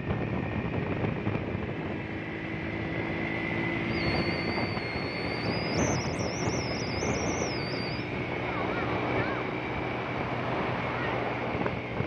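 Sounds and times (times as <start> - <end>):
motorcycle engine running: 0.0 - 12.0
wind noise on microphone: 0.0 - 12.0
high thin whistle: 3.8 - 8.1.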